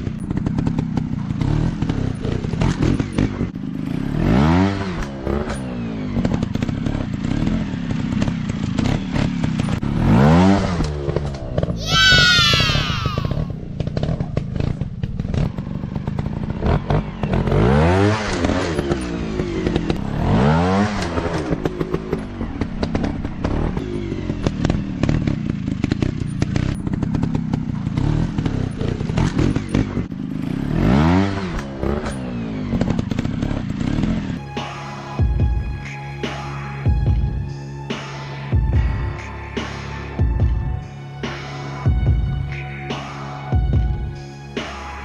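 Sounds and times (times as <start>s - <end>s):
dirt bike engine revving: 0.0s - 34.4s.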